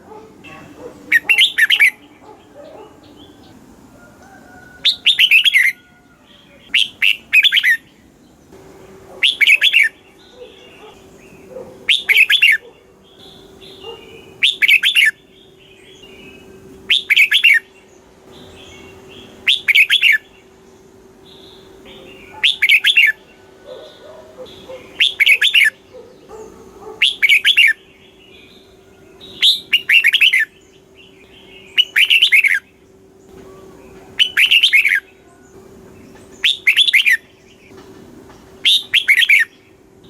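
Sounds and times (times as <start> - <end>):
bird singing: 0.0 - 40.0.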